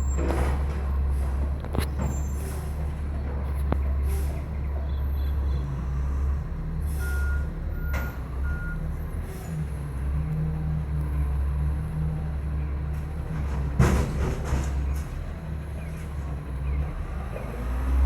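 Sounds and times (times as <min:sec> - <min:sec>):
diesel engine drone: 0:00.0 - 0:18.0
short beeps: 0:07.0 - 0:08.8.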